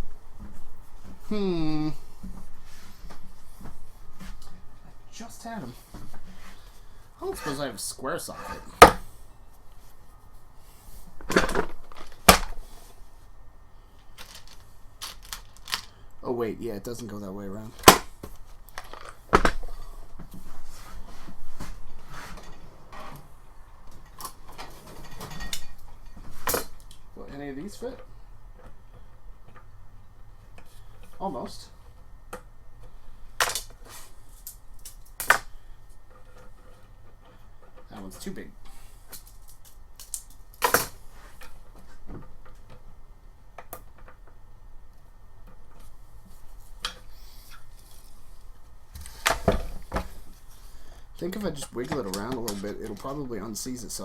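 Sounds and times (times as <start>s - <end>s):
rustling: 14.0s - 16.0s.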